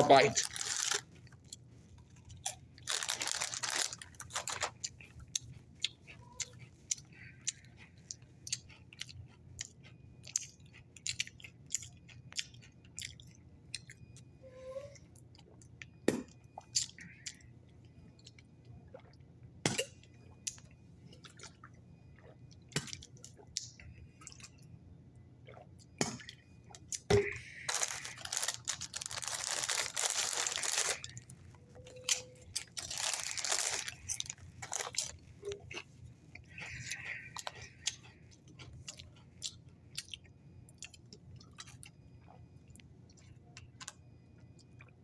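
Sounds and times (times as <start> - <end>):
crunching tortilla chip: 0.0 - 1.6, 2.3 - 5.5, 27.0 - 31.3, 32.1 - 35.2.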